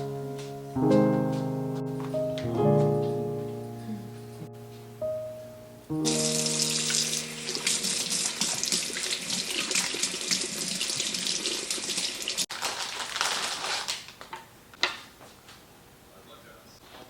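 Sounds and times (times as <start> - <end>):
tap water splashing into sink: 6.8 - 12.4.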